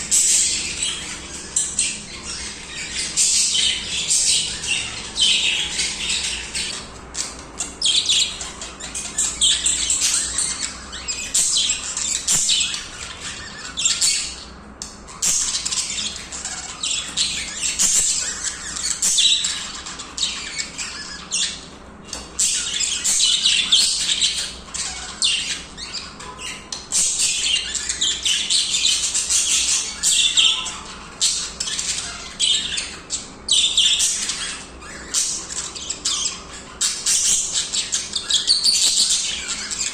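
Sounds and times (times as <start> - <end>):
budgies chirping: 0.0 - 39.9.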